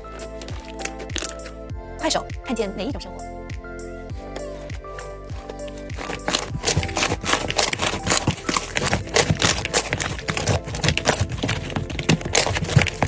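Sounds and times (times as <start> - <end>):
slime crackling and popping: 0.0 - 1.5, 4.7 - 13.0.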